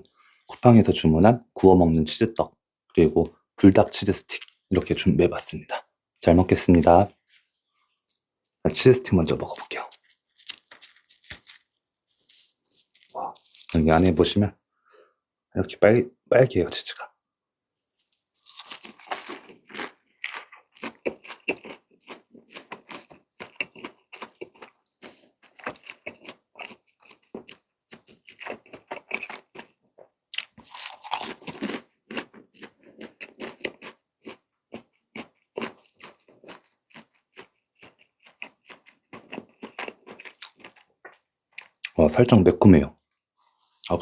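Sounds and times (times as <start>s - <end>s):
chewing and crunching: 18.0s - 42.0s.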